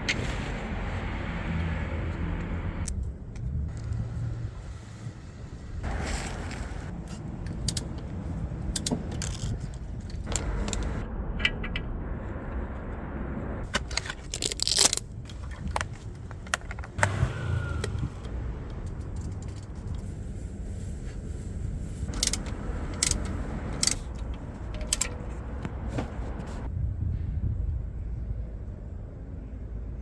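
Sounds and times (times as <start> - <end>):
steady low rumble: 0.0 - 30.0
metal tools clinking and rattling: 7.0 - 11.0, 13.6 - 17.0, 22.1 - 25.6.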